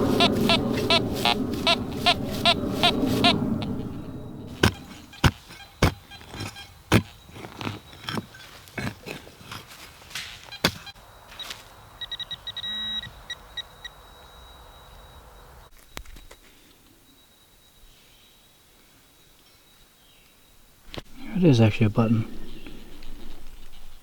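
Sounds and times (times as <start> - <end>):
metal detector beeping rapidly: 0.0 - 3.4, 4.5 - 8.2, 10.4 - 14.3
digging tool striking soil: 4.5 - 11.0.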